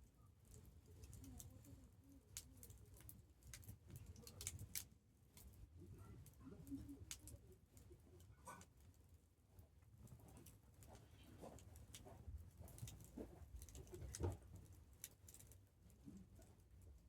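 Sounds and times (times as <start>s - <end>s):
campfire crackling: 2.6s - 5.6s.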